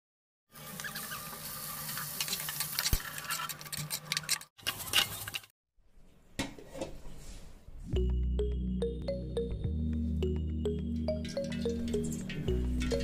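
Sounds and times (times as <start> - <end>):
chicken frying in oil: 0.5 - 3.5.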